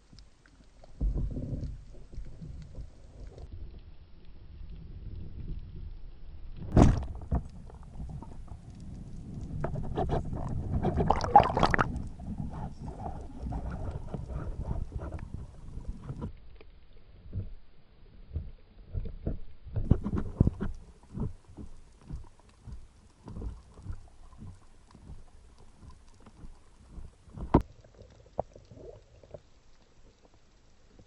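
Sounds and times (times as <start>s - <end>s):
low underwater knocks and thumps: 0.9s - 3.5s, 6.6s - 16.4s, 18.3s - 29.5s.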